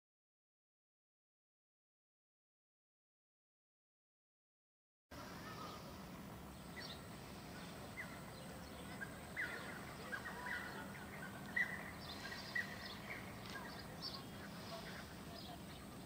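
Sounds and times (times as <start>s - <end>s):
low outdoor background noise: 5.1s - 16.0s
small birds chirping: 5.2s - 16.0s.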